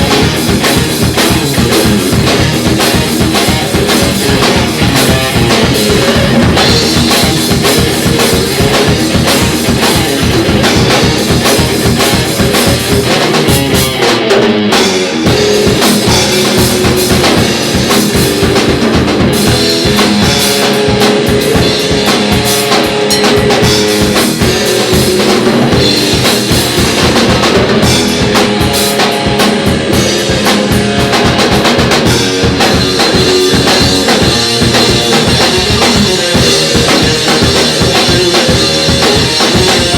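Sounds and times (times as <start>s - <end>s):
bass drum and snare beat: 0.0s - 39.9s
instrumental rock band playing: 0.0s - 39.9s.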